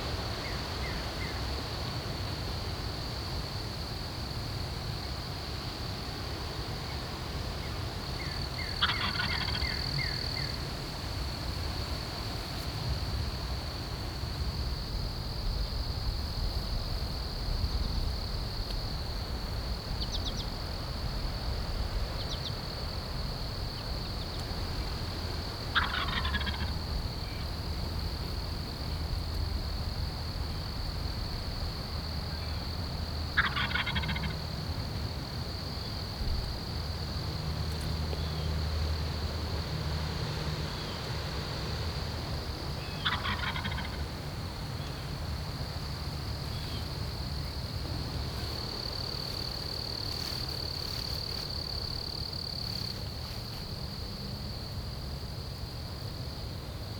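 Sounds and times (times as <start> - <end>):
low wind rumble: 7.2 - 33.4
turkey gobbling: 8.8 - 9.7, 25.7 - 26.7, 33.4 - 34.4, 43.0 - 44.0.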